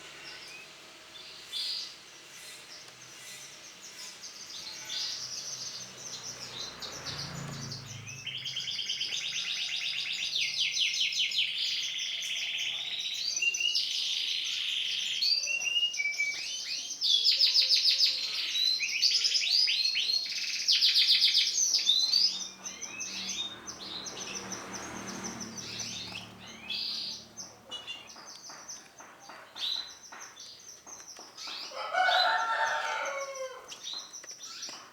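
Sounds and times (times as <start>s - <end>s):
canary chirping and trilling: 20.2s - 28.6s.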